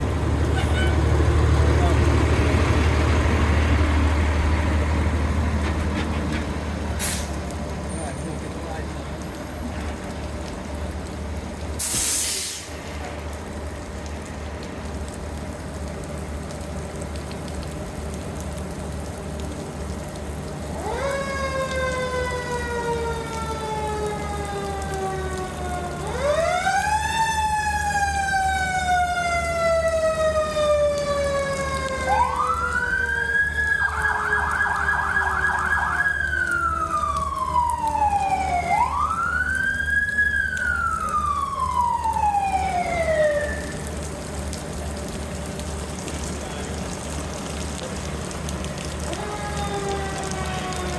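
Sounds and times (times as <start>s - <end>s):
diesel engine running: 0.0s - 11.8s
fire engine siren wailing: 0.0s - 50.9s
air hiss: 11.8s - 12.8s.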